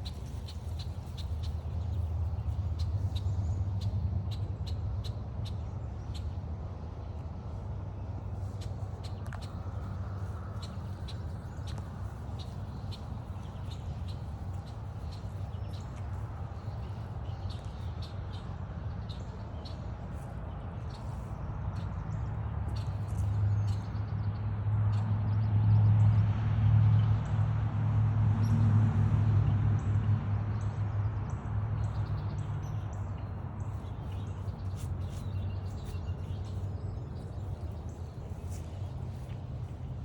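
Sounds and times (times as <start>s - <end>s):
small birds chirping: 0.0s - 6.4s, 8.0s - 24.3s, 31.8s - 40.0s
passing vehicle engine rumble: 0.0s - 40.0s.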